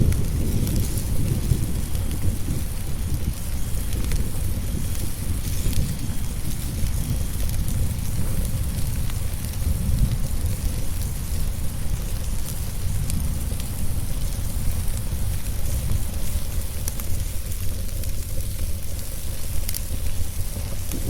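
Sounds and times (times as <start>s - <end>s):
rain and storm rumble: 0.0s - 21.0s
wood fire crackling and popping: 0.0s - 21.0s.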